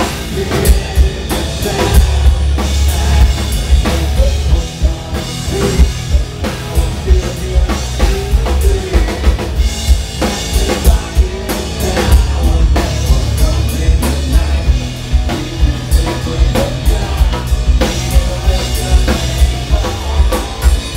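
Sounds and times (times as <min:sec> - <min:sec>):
rock band playing live: 0:00.0 - 0:20.9.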